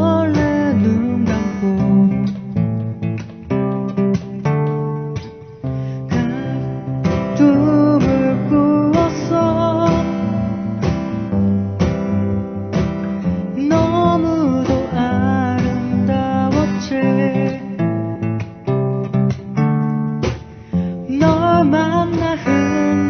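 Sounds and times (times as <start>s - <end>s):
person singing: 0.0s - 3.0s, 5.0s - 11.3s, 13.0s - 18.6s, 20.3s - 23.0s
acoustic guitars strumming: 0.0s - 23.0s.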